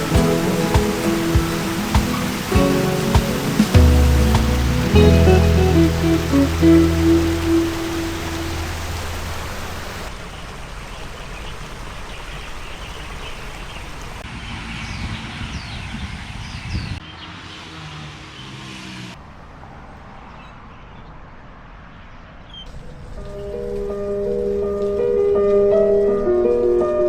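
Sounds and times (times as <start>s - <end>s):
distant traffic: 0.0s - 24.7s
small birds chirping: 10.9s - 17.7s.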